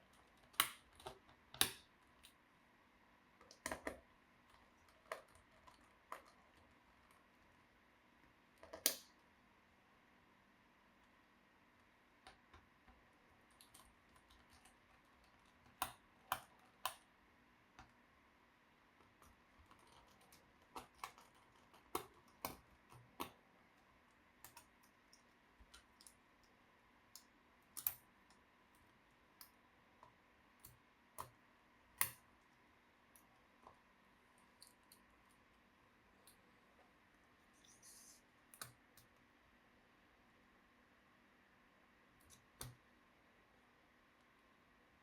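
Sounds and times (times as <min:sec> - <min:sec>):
plastic parts clicking and tapping: 0:03.4 - 0:07.2, 0:19.0 - 0:23.4.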